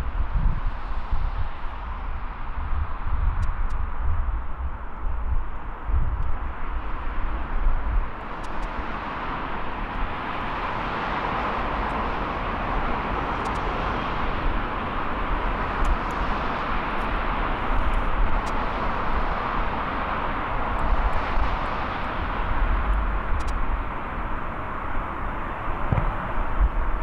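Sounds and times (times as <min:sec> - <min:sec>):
jet engines roaring: 0:06.4 - 0:27.0.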